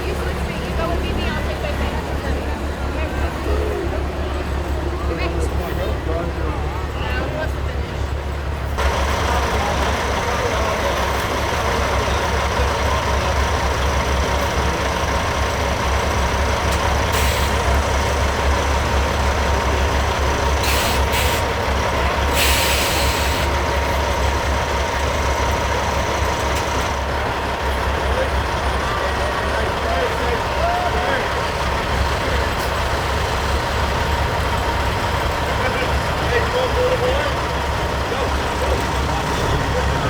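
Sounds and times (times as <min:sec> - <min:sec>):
truck diesel engines rumbling: 0:00.0 - 0:40.0
air brake hisses: 0:17.1 - 0:17.7, 0:20.6 - 0:21.5, 0:22.3 - 0:23.5.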